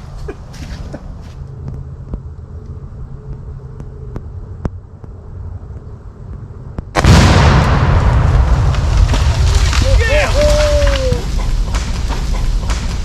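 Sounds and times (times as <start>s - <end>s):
very loud explosion: 7.0s - 13.0s.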